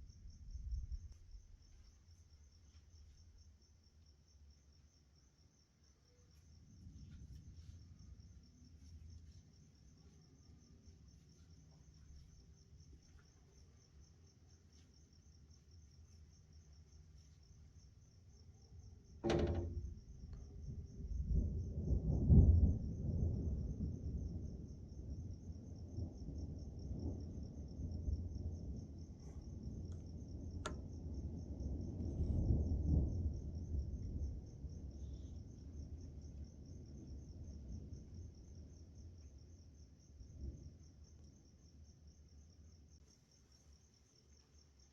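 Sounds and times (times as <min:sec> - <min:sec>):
night insects chirping: 0:00.0 - 0:44.9
thunder rumbling: 0:19.2 - 0:36.1.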